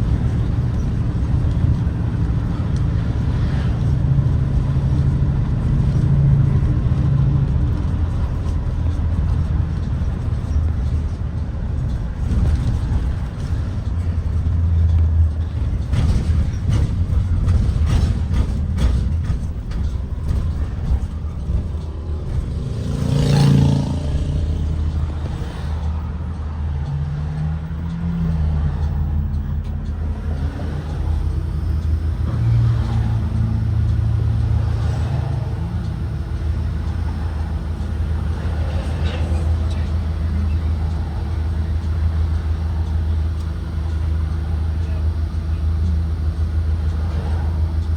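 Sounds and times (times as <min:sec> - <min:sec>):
bus engine droning: 0:00.0 - 0:47.9.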